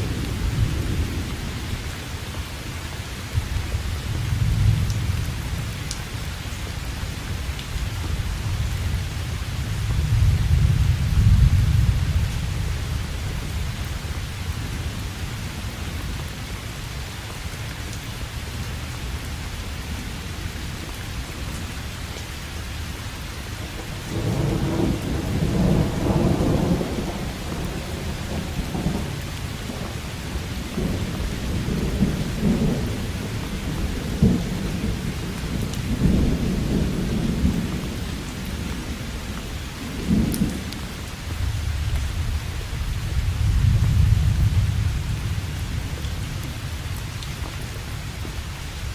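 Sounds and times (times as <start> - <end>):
steady rain hiss: 0.0 - 48.9
thunder rumbling: 3.4 - 6.0, 8.2 - 14.6, 23.7 - 46.9.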